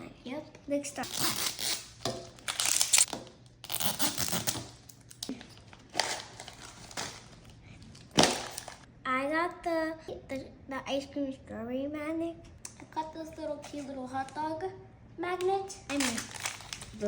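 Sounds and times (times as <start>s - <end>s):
plastic wrapping tearing and crinkling: 1.0s - 8.9s, 15.9s - 17.0s.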